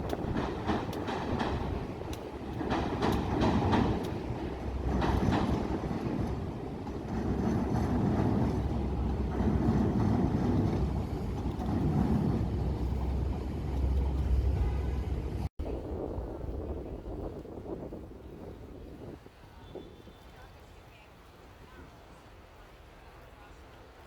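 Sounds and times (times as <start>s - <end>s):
train wheels clattering over joints: 0.0s - 14.6s
train rumbling: 0.0s - 20.5s.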